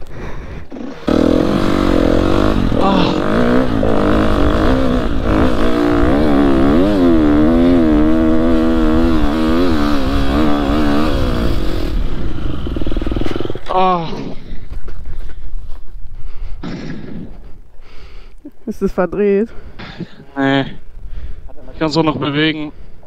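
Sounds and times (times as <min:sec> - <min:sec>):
motocross bike engine revving: 0:00.6 - 0:14.5.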